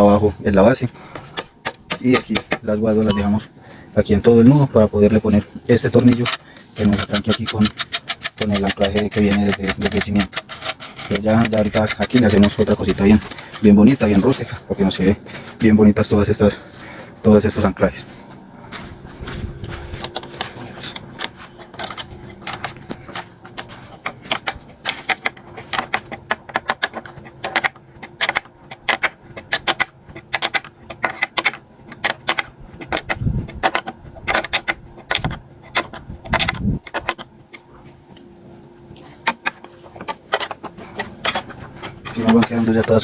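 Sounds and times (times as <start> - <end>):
metallic tool clicks: 1.4 - 3.3, 6.0 - 13.0.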